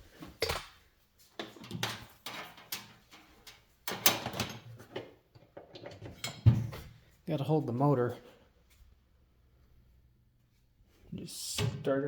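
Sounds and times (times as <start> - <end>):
metal parts knocking and clunking: 1.4 - 6.9.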